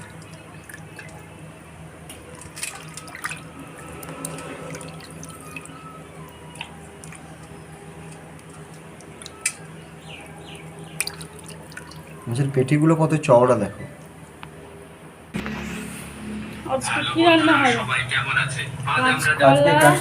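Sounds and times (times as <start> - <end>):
water dripping and splashing: 0.0 - 1.4, 2.1 - 12.6.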